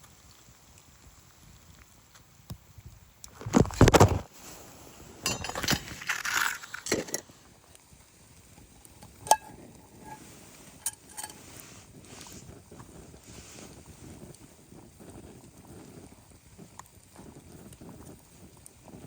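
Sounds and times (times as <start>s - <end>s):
crunching handling noises: 3.3s - 4.6s, 5.2s - 7.4s.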